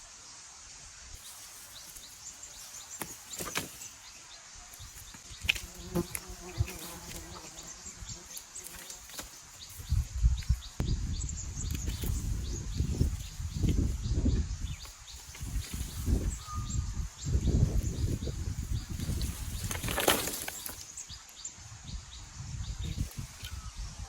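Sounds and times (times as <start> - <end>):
flying insect buzzing: 4.7 - 10.6.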